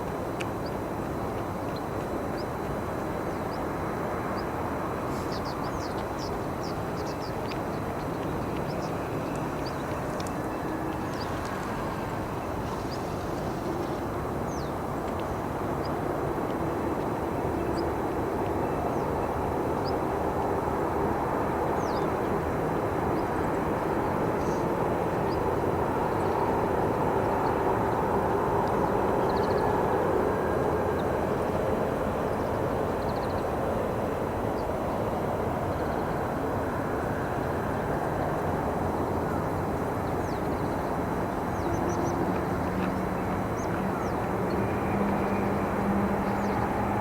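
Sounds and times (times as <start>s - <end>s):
distant engine drone: 0.0s - 47.0s
small birds chirping: 1.6s - 16.0s, 40.0s - 46.8s.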